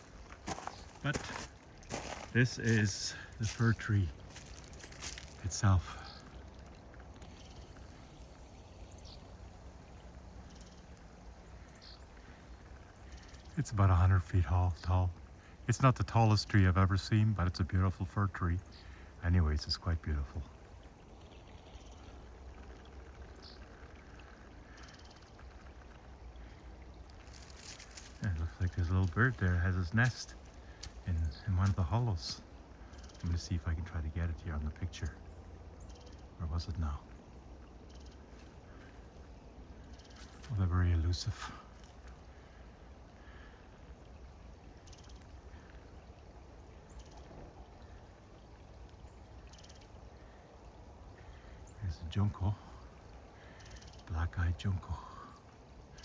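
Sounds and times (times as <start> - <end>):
creek rushing: 0.0 - 7.2, 25.8 - 34.5
small bird calling: 0.0 - 9.4
songbird trills: 0.0 - 15.6, 17.8 - 43.6, 44.4 - 48.1, 48.9 - 56.0
creek flowing: 0.0 - 56.0.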